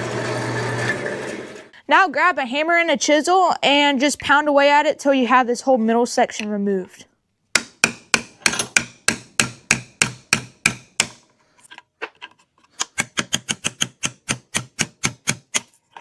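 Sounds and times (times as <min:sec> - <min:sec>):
hammer striking chisel: 0:07.6 - 0:11.2, 0:12.8 - 0:15.7.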